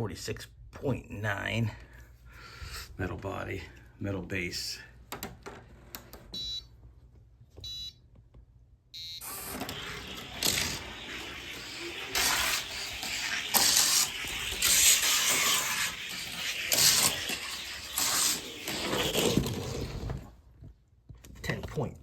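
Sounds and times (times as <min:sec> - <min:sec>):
short electronic beeps: 0:07.6 - 0:08.0, 0:09.0 - 0:09.4
toy car rolling on plastic track: 0:09.2 - 0:20.3.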